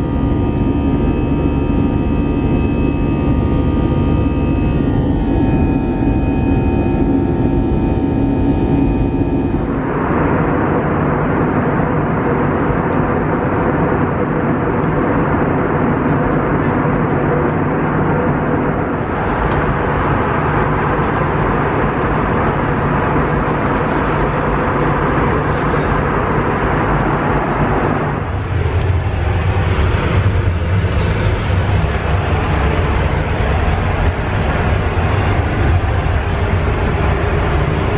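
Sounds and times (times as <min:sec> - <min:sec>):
jet engines and airflow rushing: 0:00.0 - 0:37.9
low cabin hum: 0:00.0 - 0:37.9.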